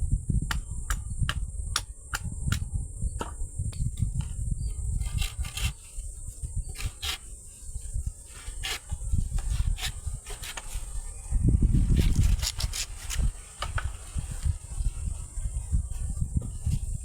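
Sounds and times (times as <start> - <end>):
insect chorus: 0.0 - 17.0
clicks and scrapes of handling: 12.0 - 13.9.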